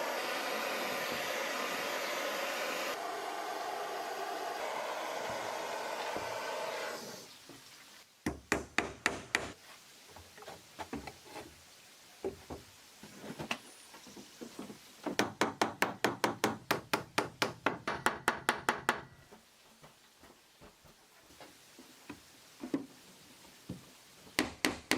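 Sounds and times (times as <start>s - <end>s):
hammer striking wood: 8.2s - 9.6s, 15.2s - 19.1s, 24.4s - 24.9s.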